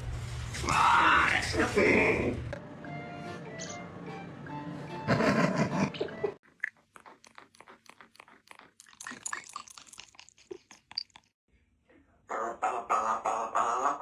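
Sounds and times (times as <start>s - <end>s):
parrot crunching something hard: 6.4s - 11.3s.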